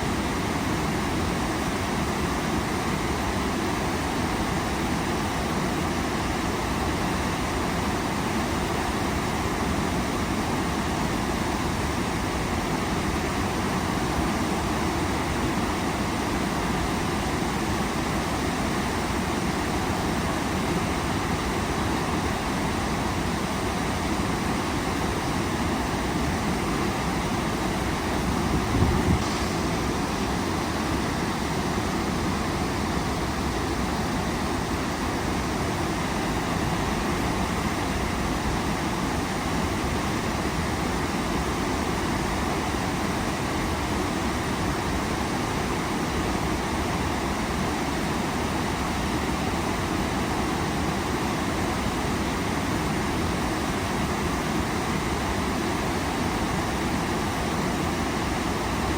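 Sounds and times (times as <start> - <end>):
waterfall roaring: 13.2 - 58.9.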